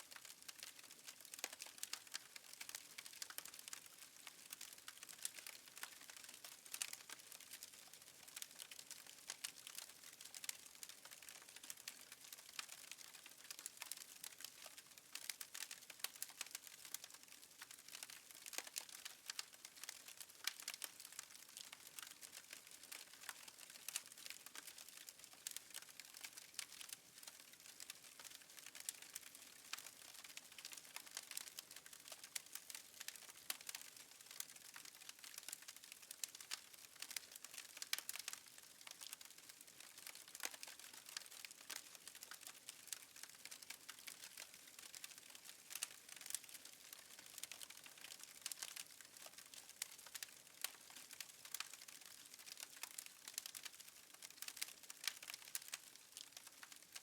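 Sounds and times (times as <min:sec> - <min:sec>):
wood fire crackling: 0:00.1 - 0:57.0.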